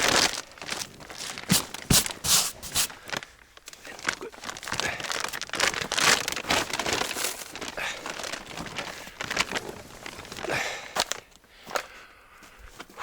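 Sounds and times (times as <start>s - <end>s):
rustling dry vegetation: 0.0s - 11.7s
footsteps: 1.2s - 3.0s.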